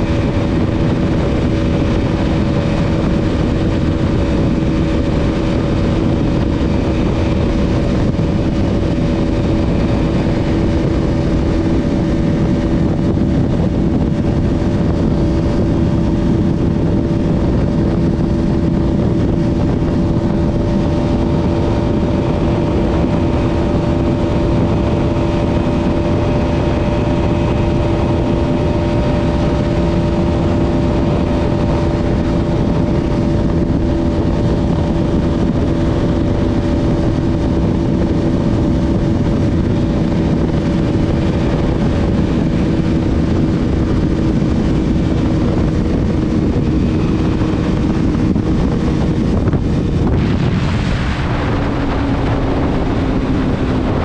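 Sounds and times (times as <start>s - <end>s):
motorcycle engine running: 0.0s - 54.0s
wind rush: 0.0s - 54.0s.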